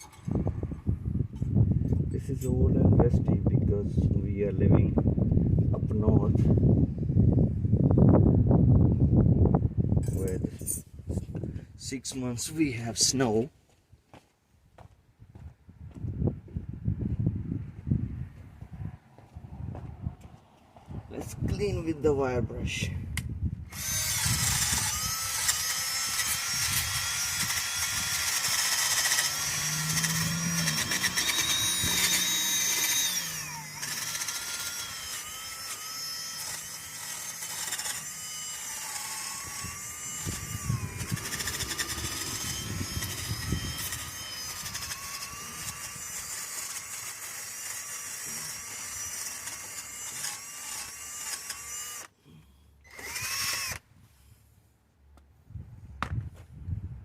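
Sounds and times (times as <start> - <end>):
electric drill motor whining: 23.7 - 53.8
wire brush scratching metal: 23.8 - 50.4.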